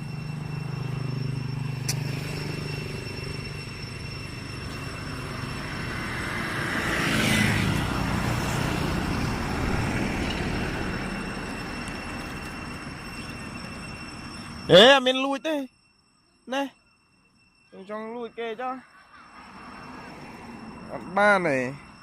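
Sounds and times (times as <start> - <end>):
vehicle passing: 0.0 - 14.3, 19.2 - 22.0
vehicle engine humming: 0.0 - 15.0.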